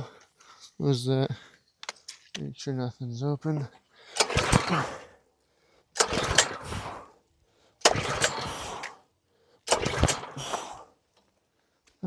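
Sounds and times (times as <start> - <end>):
engine recoil pull-cord cranking: 4.1 - 5.2, 6.0 - 7.2, 7.8 - 11.0.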